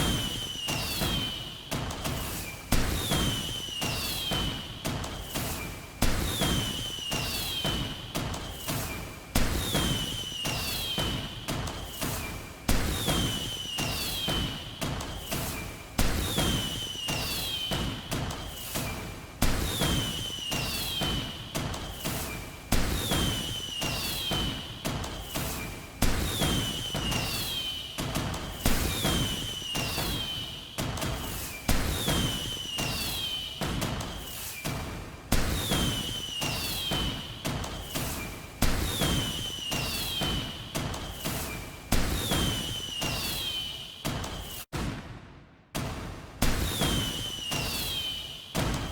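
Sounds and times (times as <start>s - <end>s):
fireworks bangs: 0.0s - 48.9s
falling whistle: 0.1s - 1.5s, 3.2s - 4.5s, 9.6s - 11.2s, 13.2s - 14.5s, 16.4s - 17.8s, 20.1s - 21.1s, 23.2s - 24.5s, 26.3s - 28.0s, 28.8s - 33.6s, 35.7s - 37.3s, 38.9s - 44.6s, 46.7s - 48.9s.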